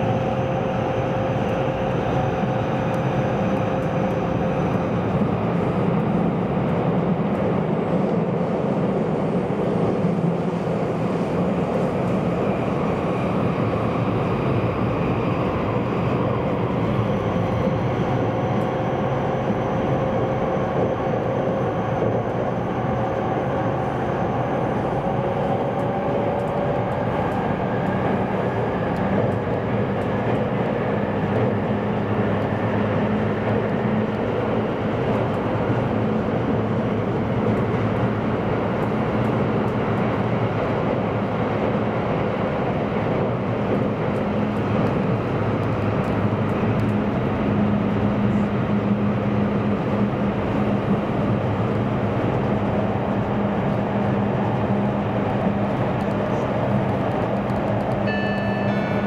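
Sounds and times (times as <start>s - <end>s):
train cabin running rumble: 0.0s - 59.0s.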